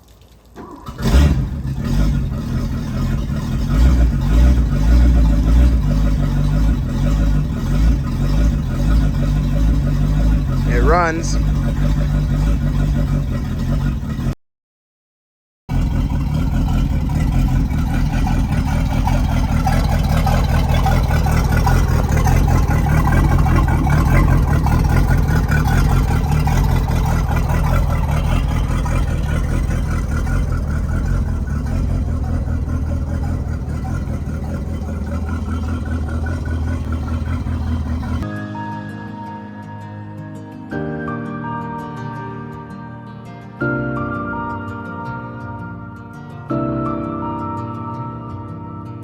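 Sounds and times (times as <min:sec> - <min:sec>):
boat engine running: 0:00.8 - 0:14.3, 0:15.7 - 0:38.3.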